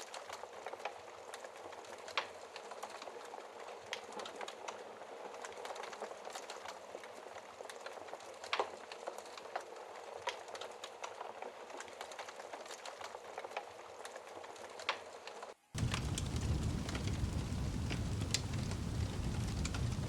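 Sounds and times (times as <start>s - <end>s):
wood crackling and popping: 0.0s - 20.0s
fire hissing: 15.8s - 20.0s.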